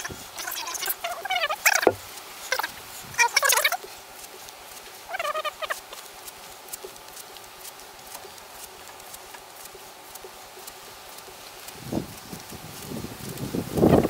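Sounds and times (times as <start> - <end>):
bird warbling call: 5.1 - 6.0
light ticks: 5.9 - 13.9.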